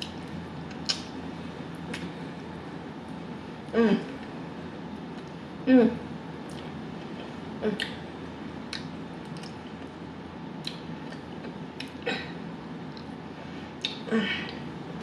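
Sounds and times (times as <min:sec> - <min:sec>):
wet chewing and gnawing: 0:08.7 - 0:09.9.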